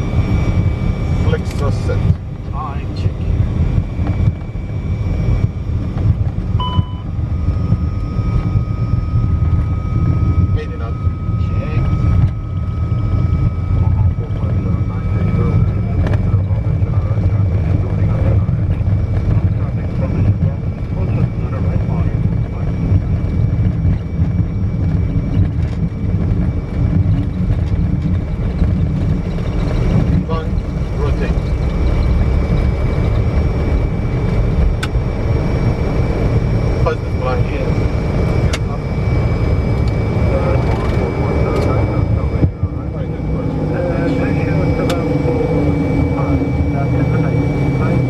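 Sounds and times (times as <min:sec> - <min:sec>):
jet engines and wheels rumbling: 0:00.0 - 0:48.0
two-pitch beep: 0:06.6 - 0:09.4
steady high tone: 0:06.6 - 0:16.0, 0:30.2 - 0:48.0.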